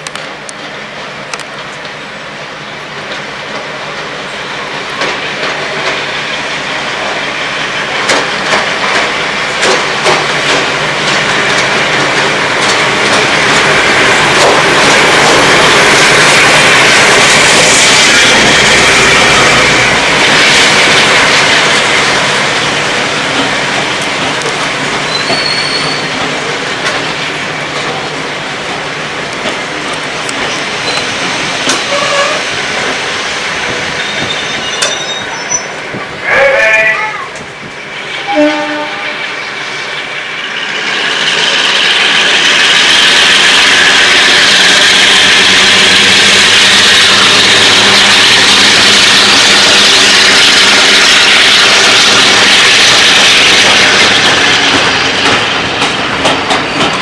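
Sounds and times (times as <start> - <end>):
train rumbling on rails: 0.0 - 57.0
wheels clicking over rail joints: 8.0 - 16.7, 52.1 - 57.0
train wheel squeal: 24.9 - 26.4, 30.4 - 32.9, 33.7 - 36.0, 38.1 - 55.4.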